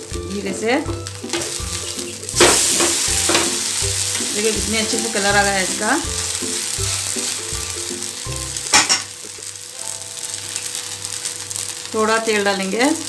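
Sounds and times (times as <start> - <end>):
batter sizzling on a griddle: 0.0 - 13.0.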